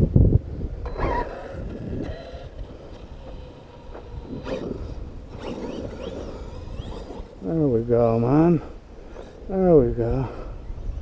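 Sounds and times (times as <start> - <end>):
electric motor whining: 0.8 - 7.7.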